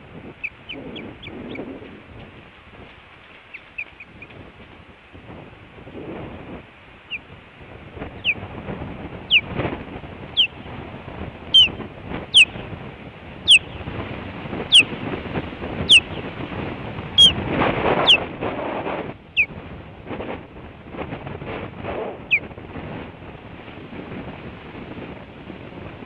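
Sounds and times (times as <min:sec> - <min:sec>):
wind on microphone: 0:00.0 - 0:26.0
osprey whistled chirps: 0:11.6 - 0:11.8.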